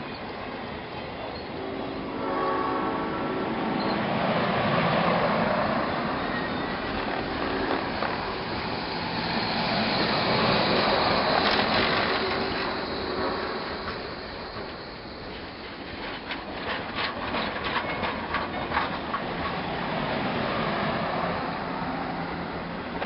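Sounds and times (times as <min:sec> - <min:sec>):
train running noise: 0:00.0 - 0:23.0
locomotive horn chord blast: 0:01.6 - 0:03.6.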